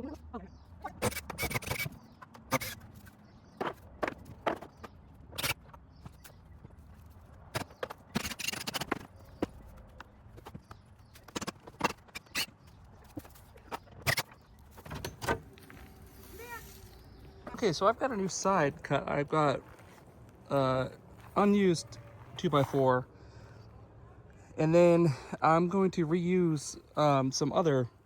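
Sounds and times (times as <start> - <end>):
rough scraping: 11.0 - 23.0.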